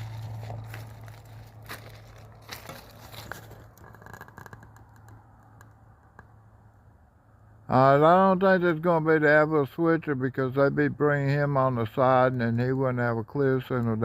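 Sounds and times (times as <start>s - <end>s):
crackling and rustling near microphone: 0.0s - 6.6s
distant diesel train drone: 0.0s - 14.0s.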